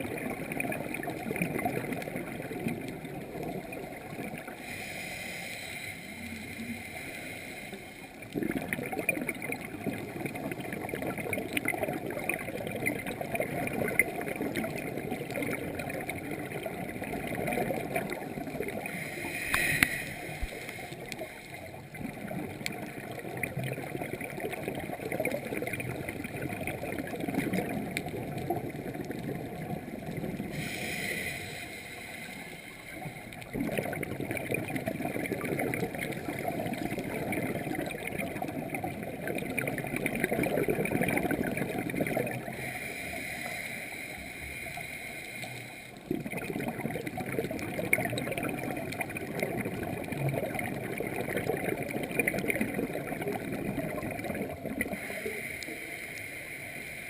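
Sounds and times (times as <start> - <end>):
bubbling exhaust: 0.0 - 44.4, 46.0 - 55.8
regulator hissing inhale: 4.5 - 8.3, 18.8 - 21.8, 30.5 - 33.4, 42.5 - 46.0, 54.9 - 57.0.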